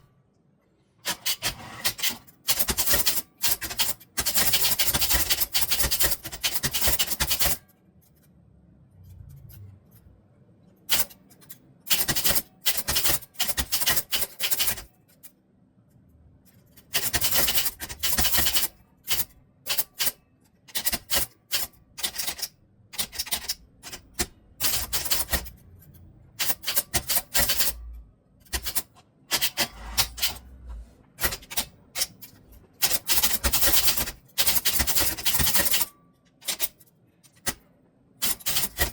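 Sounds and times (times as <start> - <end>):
fast typing key clicks: 16.9 - 25.6, 26.4 - 30.5.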